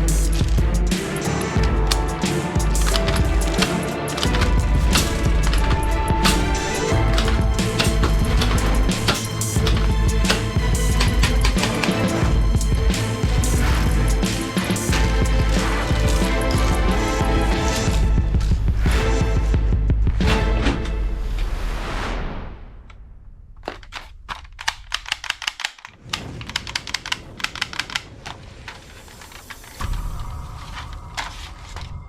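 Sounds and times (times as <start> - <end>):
background music with steady beat: 0.0 - 21.2
quick sharp clicks: 23.7 - 29.8.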